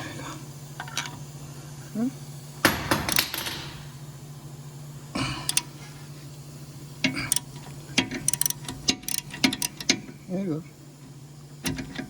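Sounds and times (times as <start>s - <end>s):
steady low hum: 0.0s - 12.0s
wrench and bolt clinking: 2.7s - 3.9s.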